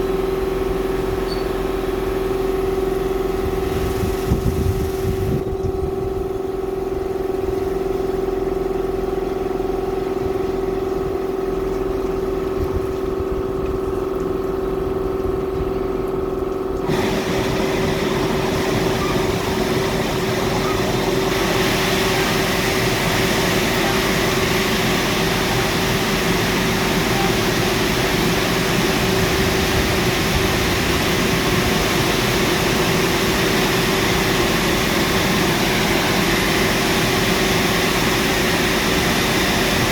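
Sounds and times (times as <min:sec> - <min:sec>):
car wash water rushing hiss: 0:00.0 - 0:05.4, 0:16.8 - 0:39.9
car wash machine hum: 0:00.0 - 0:39.9.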